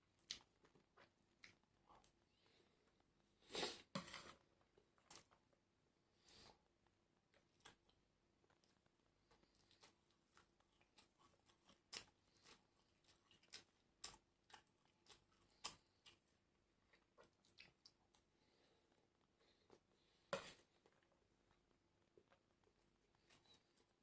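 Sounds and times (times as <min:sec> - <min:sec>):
person chewing crunchy food: 0:07.2 - 0:24.0.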